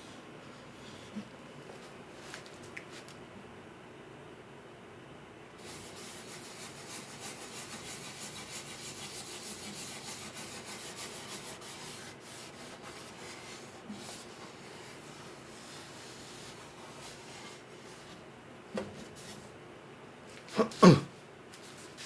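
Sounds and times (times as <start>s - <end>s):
rubbing strokes: 5.6s - 18.3s.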